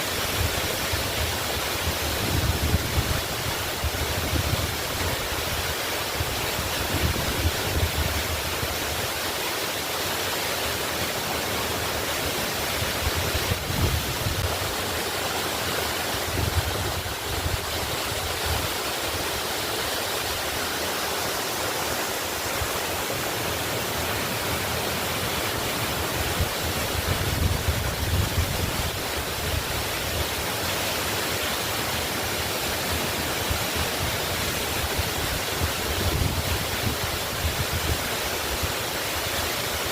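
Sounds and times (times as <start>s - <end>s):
waterfall rushing: 0.0s - 39.9s
wind buffeting microphone: 12.8s - 14.6s, 16.2s - 18.9s.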